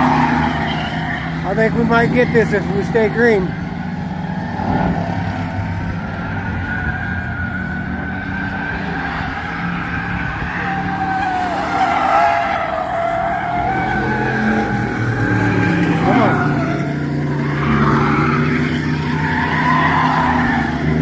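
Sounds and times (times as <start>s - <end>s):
race car engines: 0.0s - 21.0s
tire squeal: 0.0s - 21.0s.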